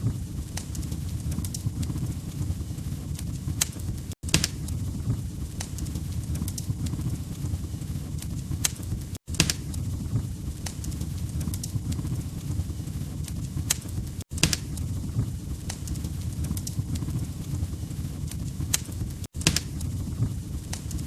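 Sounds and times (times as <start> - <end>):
log fire crackling: 0.0 - 21.0.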